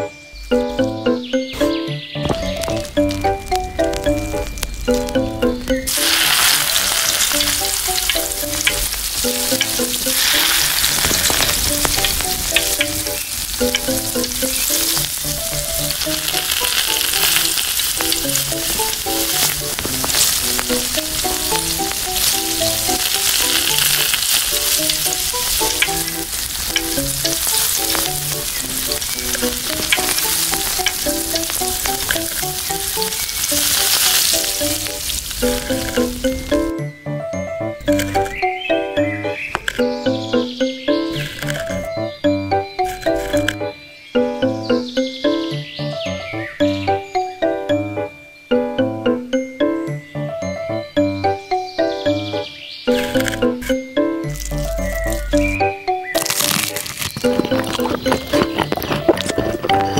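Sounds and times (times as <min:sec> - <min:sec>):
light background music: 0:00.0 - 0:59.9
food sizzling in hot oil: 0:03.0 - 0:36.7.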